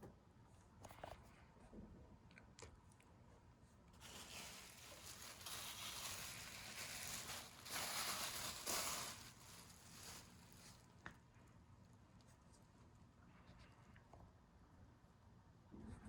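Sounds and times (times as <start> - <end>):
material rustling and scraping: 4.0 - 10.9.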